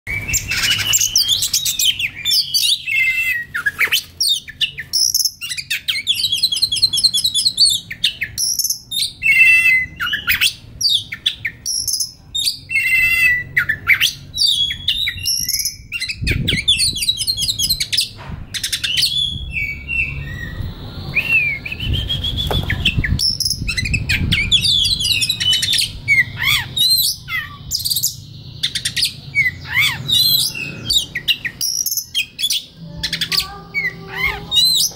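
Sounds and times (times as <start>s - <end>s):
bird singing whistled phrases: 0.1s - 34.9s.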